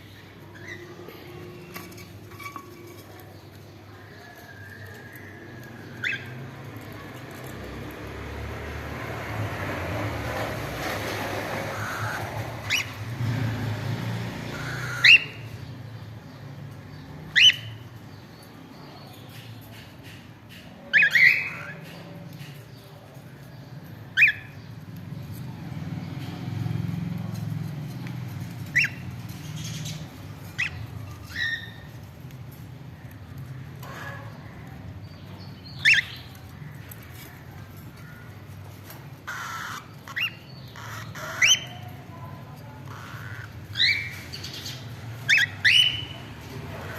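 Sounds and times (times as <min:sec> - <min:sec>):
cockatiels chirping: 0:00.1 - 0:02.0, 0:04.8 - 0:07.5, 0:11.6 - 0:13.1, 0:14.4 - 0:15.7, 0:17.3 - 0:17.9, 0:19.8 - 0:22.7, 0:24.1 - 0:24.6, 0:28.5 - 0:32.0, 0:35.7 - 0:36.5, 0:38.8 - 0:46.9.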